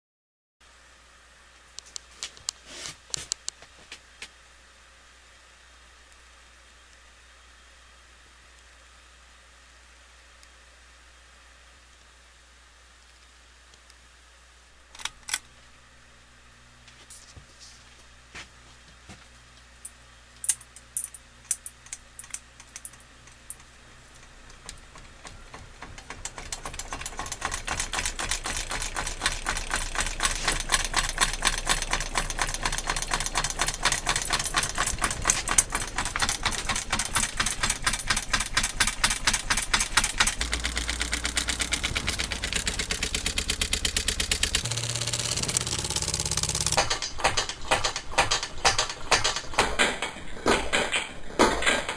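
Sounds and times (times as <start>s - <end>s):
ceiling fan clicking rattle: 19.5s - 51.9s
low motor hum: 22.5s - 47.1s.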